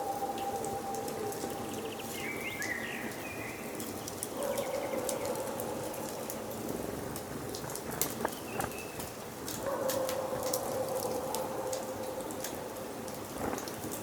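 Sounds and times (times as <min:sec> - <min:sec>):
wood fire crackling and popping: 0:06.1 - 0:11.2, 0:12.4 - 0:14.0.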